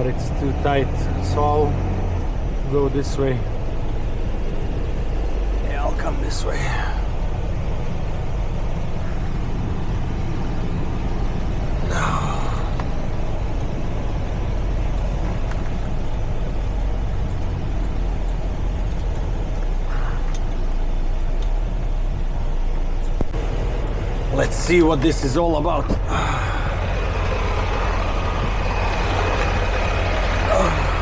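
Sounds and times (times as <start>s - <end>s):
truck diesel engine running: 0.0s - 31.0s.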